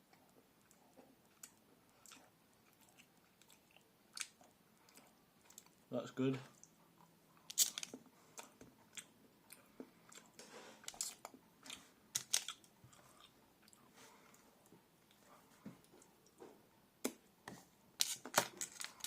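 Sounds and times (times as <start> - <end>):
person chewing chocolate: 0.0 - 5.9, 6.5 - 16.4, 17.1 - 19.0.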